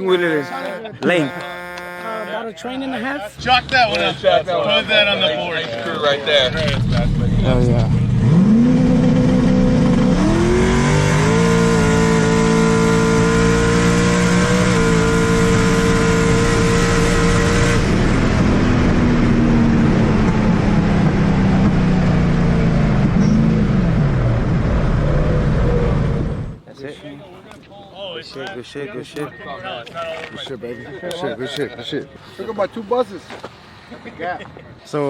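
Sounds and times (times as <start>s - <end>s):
motor vehicle running: 3.3s - 26.6s.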